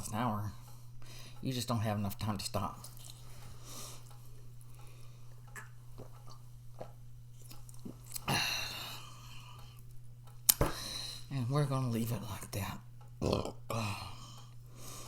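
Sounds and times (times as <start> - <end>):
person chewing food: 2.8 - 10.6
wet mouth clicks: 5.4 - 8.4.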